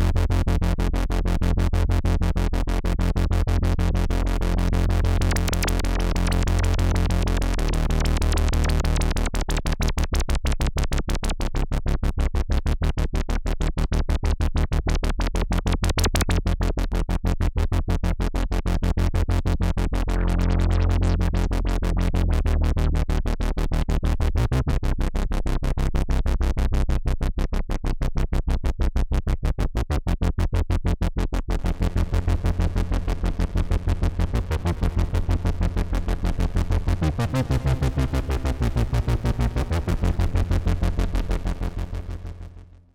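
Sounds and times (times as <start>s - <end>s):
heavy low bass: 0.0s - 10.0s, 18.9s - 27.2s, 31.4s - 42.9s.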